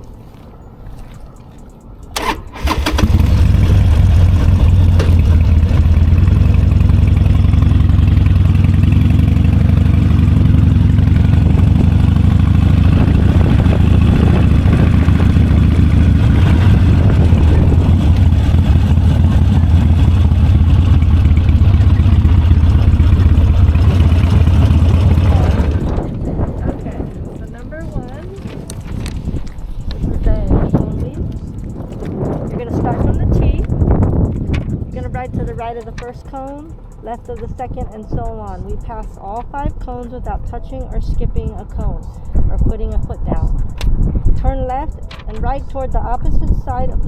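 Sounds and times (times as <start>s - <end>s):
electric starter cranking: 2.0s - 27.8s
motorcycle engine idling: 2.1s - 46.2s.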